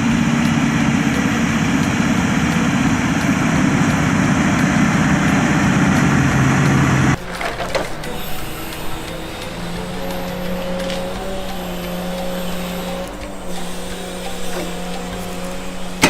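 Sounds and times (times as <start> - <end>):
heavy logging machinery running: 0.0 - 16.0
wood crunching and splintering: 6.4 - 9.1.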